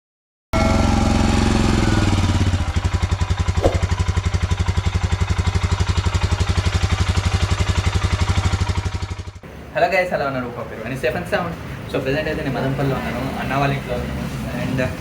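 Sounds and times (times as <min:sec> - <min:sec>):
motorcycle engine idling: 0:00.8 - 0:09.4.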